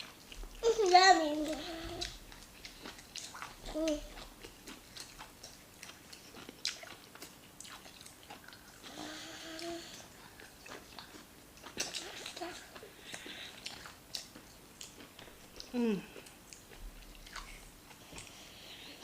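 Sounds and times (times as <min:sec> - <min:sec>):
chewing with mouth smacks: 0:00.0 - 0:09.0, 0:09.8 - 0:19.0
person humming: 0:15.7 - 0:16.2.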